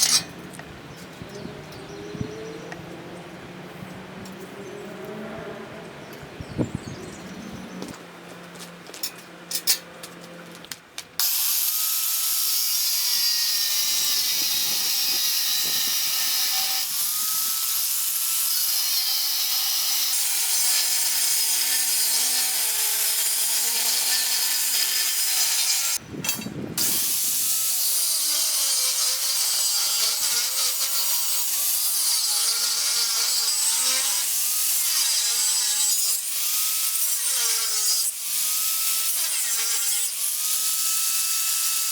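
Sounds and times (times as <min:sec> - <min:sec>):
power tool working metal: 0:00.0 - 0:00.4, 0:11.2 - 0:41.9.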